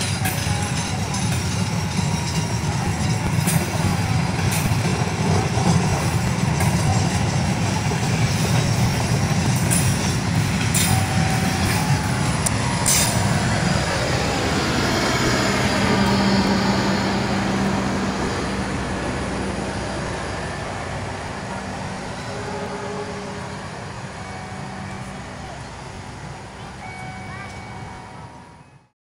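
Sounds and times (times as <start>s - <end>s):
train wheels rumbling on rails: 0.0s - 28.9s.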